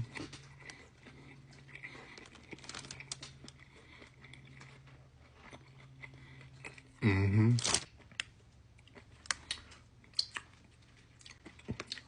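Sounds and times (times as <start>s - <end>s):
person chewing: 0.0s - 12.0s
soft crinkling: 0.2s - 5.6s, 7.6s - 8.2s.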